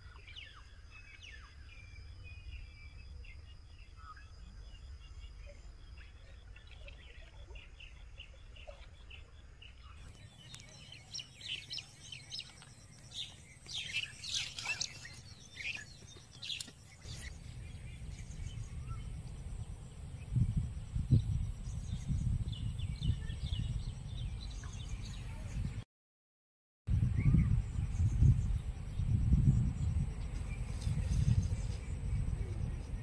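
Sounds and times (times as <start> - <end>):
small birds chirping: 0.0 - 25.8
low rumbling thumps: 17.3 - 24.6.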